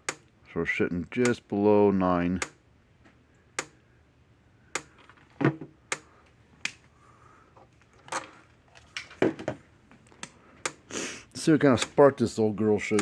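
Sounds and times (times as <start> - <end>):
electric fence charger clicks: 4.7 - 5.2, 11.7 - 12.0.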